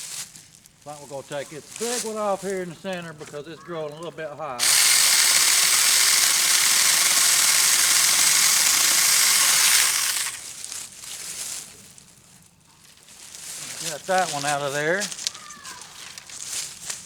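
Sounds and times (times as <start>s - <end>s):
chainsaw cutting a tree limb: 4.6s - 10.6s.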